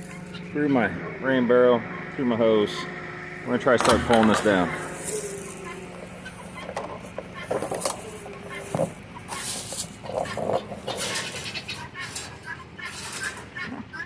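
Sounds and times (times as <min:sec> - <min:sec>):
poultry clucking: 0:00.0 - 0:14.0
cable scraping through plastic barrel: 0:06.7 - 0:13.5.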